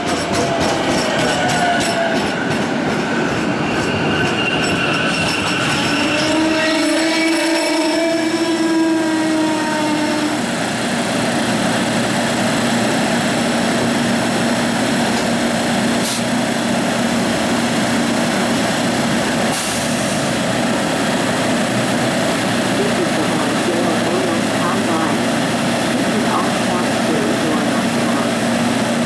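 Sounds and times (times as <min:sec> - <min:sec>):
train rumbling: 0:00.0 - 0:29.0
train horn chord: 0:06.1 - 0:10.5.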